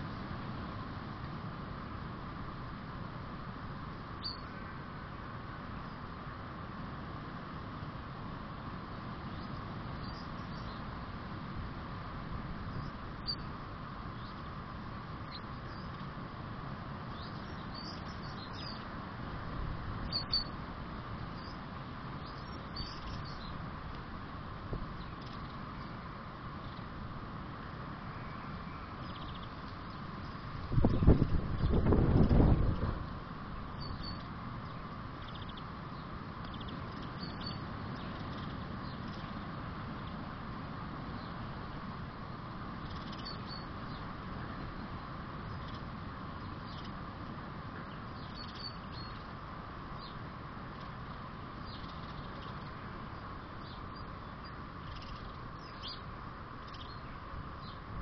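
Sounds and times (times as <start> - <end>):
background hiss: 0.0 - 58.0
small birds chirping: 4.2 - 4.8, 9.3 - 10.9, 15.2 - 16.1, 17.1 - 19.0, 20.0 - 20.6, 21.2 - 23.7, 24.9 - 26.9, 28.0 - 32.9, 33.6 - 40.4, 41.1 - 47.1, 47.8 - 57.9.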